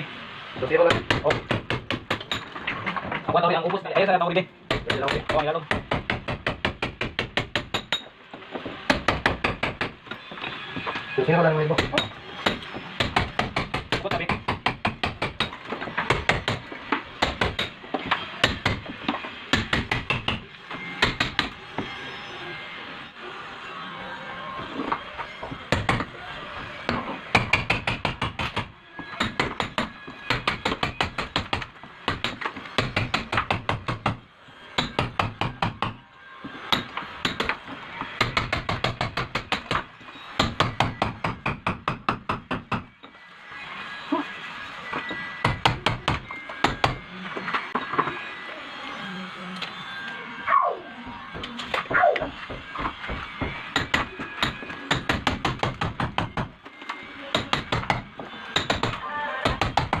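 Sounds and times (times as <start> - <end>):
hammer striking masonry wall: 0.6 - 3.2, 4.7 - 10.2, 11.7 - 21.9, 24.9 - 26.2, 26.8 - 42.9, 45.4 - 47.1, 51.4 - 56.6, 57.3 - 60.0.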